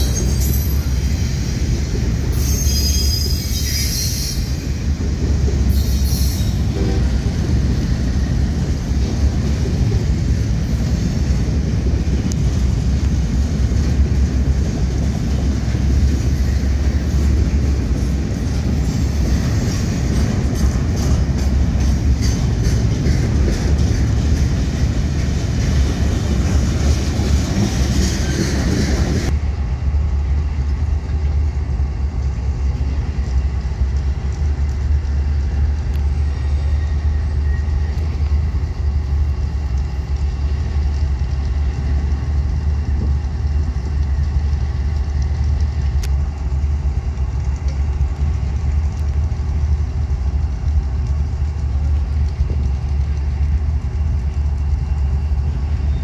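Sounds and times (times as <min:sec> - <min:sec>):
diesel locomotive engine running: 0:00.0 - 0:56.0
wheels clattering over rails: 0:11.4 - 0:29.3.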